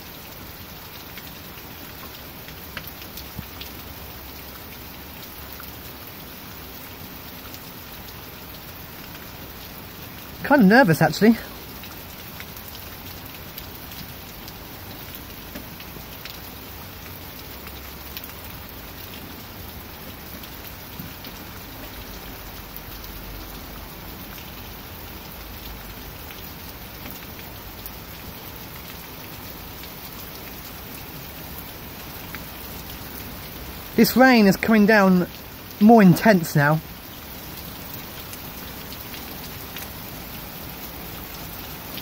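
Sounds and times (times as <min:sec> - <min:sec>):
heavy rain pouring: 0:00.0 - 0:42.0
raindrop impacts: 0:31.5 - 0:42.0.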